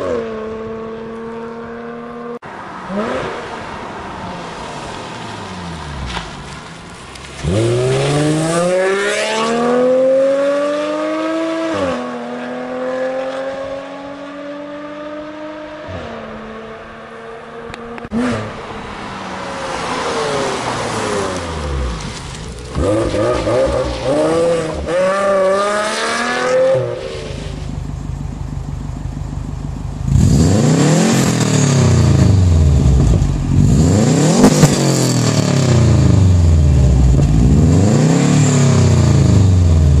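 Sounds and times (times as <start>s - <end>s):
car passing by: 1.9s - 14.2s, 18.0s - 27.6s
car engine accelerating: 4.7s - 40.0s.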